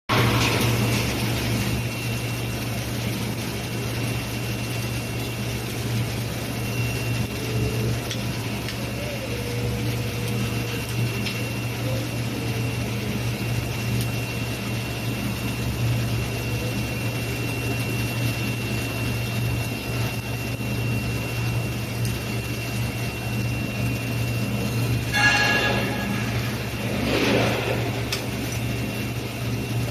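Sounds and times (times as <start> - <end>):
welding machine humming and hissing: 0.1 - 29.9
faint high whine: 0.2 - 29.9.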